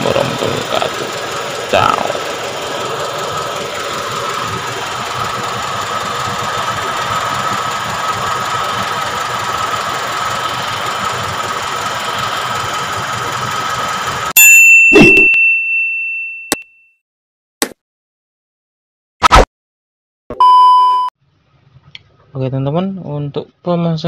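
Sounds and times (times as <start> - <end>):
car engine idling: 0.0 - 14.3.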